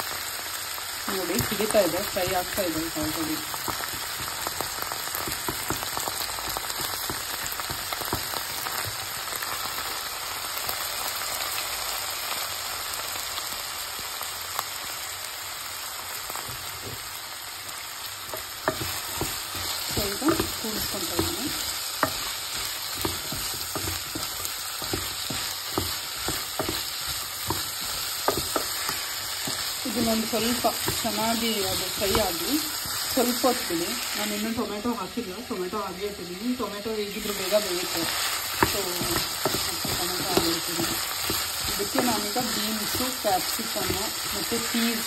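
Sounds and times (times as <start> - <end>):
vegetables sizzling in oil: 0.0 - 45.0
spatula scraping and knocking pan: 18.2 - 34.7, 37.2 - 45.0.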